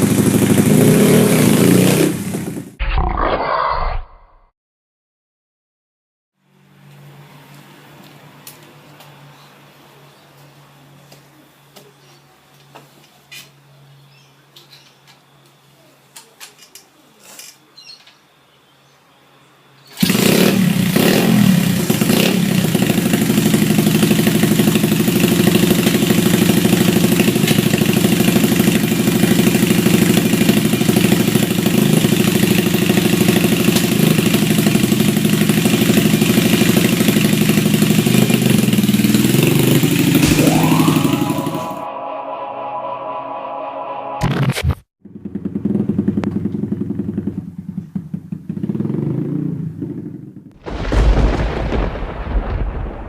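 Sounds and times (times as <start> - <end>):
pit bike engine running: 0.0 - 2.8, 20.0 - 41.8, 45.0 - 50.4.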